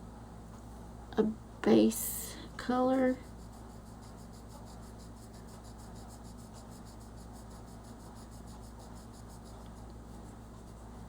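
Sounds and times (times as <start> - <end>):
steady low hum: 0.0 - 11.0
pencil scratching on paper: 2.6 - 11.0.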